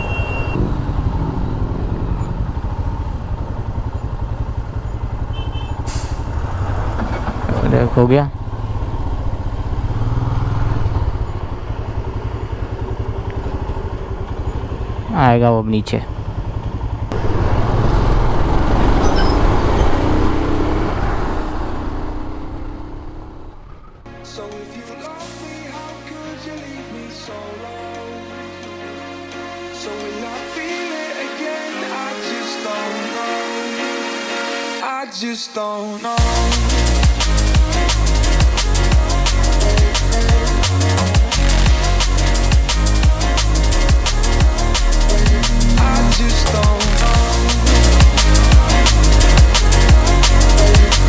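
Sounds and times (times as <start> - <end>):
heavy vehicle passing by: 0.0 - 24.0
motorcycle engine rumbling: 0.0 - 24.0, 36.2 - 51.0.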